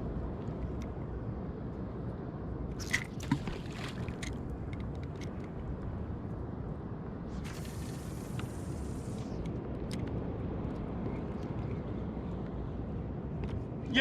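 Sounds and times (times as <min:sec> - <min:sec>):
wind rumble on microphone: 0:00.0 - 0:14.0
splashes and knocks: 0:02.8 - 0:04.4.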